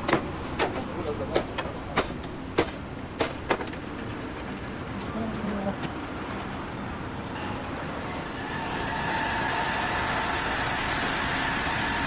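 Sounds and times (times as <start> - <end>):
steady mechanical running noise: 0.0 - 12.0.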